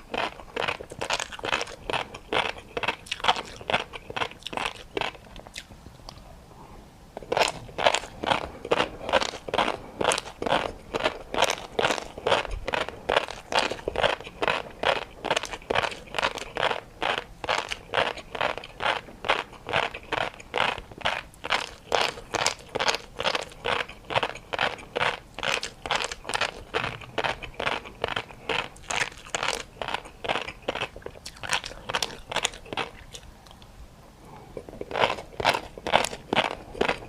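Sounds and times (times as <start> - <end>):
crunchy chewing and biting: 0.0 - 6.3, 7.2 - 33.7, 34.6 - 37.0.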